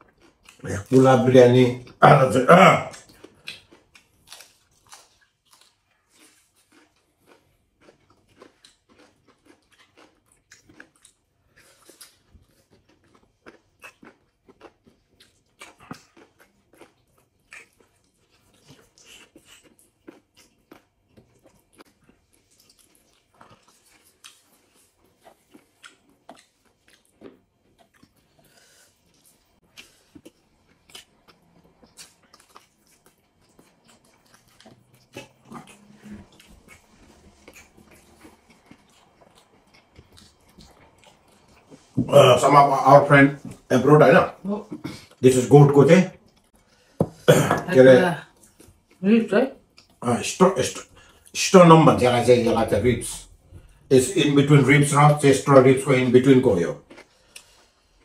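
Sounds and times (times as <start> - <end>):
chewing and mouth smacks: 0.0 - 0.9, 2.9 - 42.0, 48.2 - 49.0, 49.6 - 50.0, 56.8 - 58.0.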